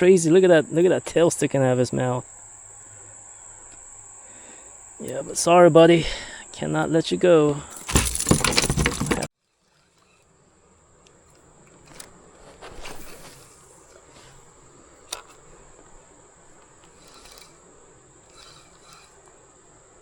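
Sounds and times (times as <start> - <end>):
insects buzzing: 0.0 - 20.0
rustle: 7.3 - 20.0.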